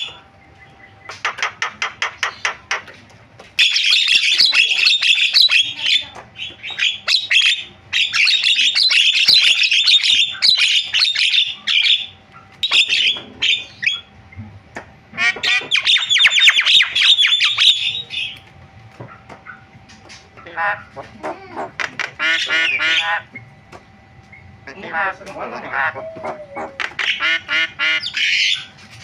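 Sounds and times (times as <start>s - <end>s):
myna squawking and chattering: 3.6s - 14.2s, 15.1s - 18.4s, 19.0s - 23.5s, 24.3s - 28.8s.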